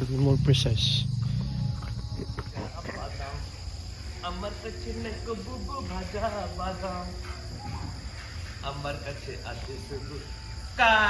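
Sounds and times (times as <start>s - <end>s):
low rumble: 0.0s - 2.8s
insects trilling: 0.0s - 11.0s.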